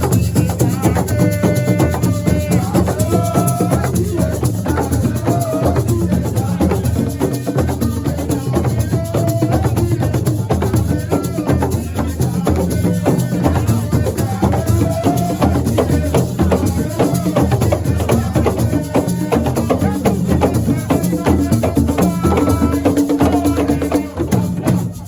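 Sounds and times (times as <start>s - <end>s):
drums and rattles playing: 0.0s - 25.0s
person singing: 0.0s - 25.0s.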